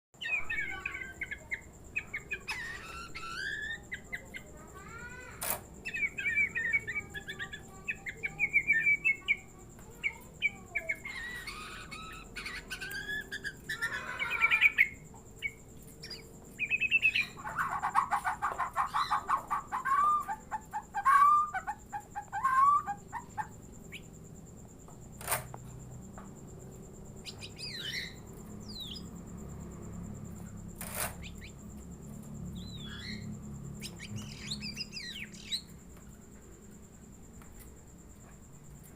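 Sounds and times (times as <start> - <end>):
songbird singing whistled phrases: 0.2 - 4.4, 5.8 - 9.4, 10.0 - 24.1, 32.6 - 35.7
bird mimicking hen clucking: 17.0 - 24.0.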